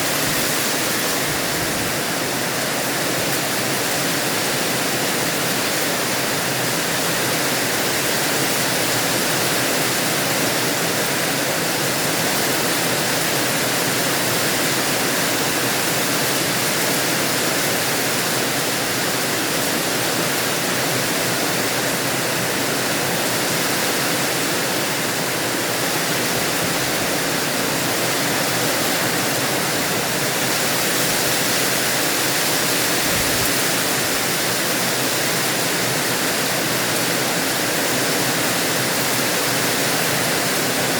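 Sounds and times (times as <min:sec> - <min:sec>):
rain falling: 0:00.0 - 0:40.9.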